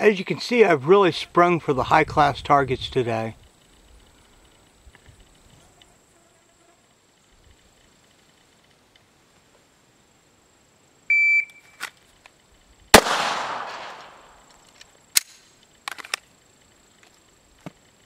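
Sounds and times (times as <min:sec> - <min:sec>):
electronic beep: 0:11.1 - 0:11.8
pistol shot echoing: 0:12.9 - 0:14.5.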